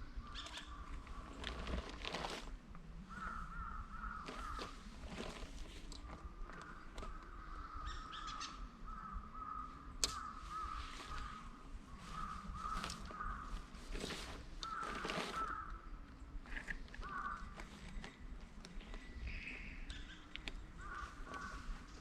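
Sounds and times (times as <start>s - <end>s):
crows cawing: 0.2s - 1.3s, 3.1s - 4.9s, 6.4s - 16.0s, 16.8s - 17.8s, 20.0s - 22.0s
small clicks and rustles: 0.4s - 2.8s, 4.1s - 7.4s, 12.2s - 22.0s.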